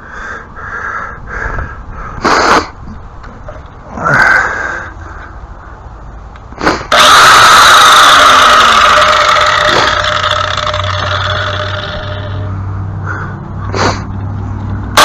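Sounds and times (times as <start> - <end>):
power tool high whine: 6.9 - 12.5.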